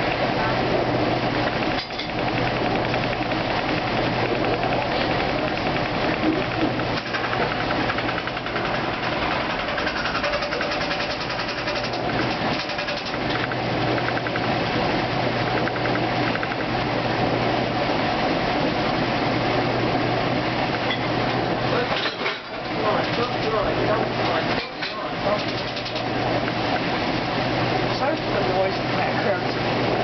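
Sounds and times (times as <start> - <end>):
spinning tub whir: 0.0 - 30.0
washing machine motor hum: 0.0 - 30.0
fast even rattle: 1.7 - 14.7, 25.3 - 26.1.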